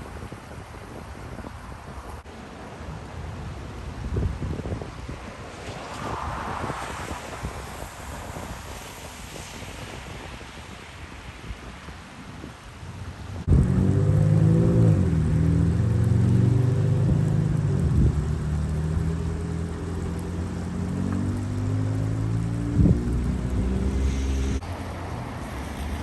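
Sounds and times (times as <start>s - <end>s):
wind and water rushing: 0.0s - 26.0s
vehicle engine low drone: 13.4s - 24.9s.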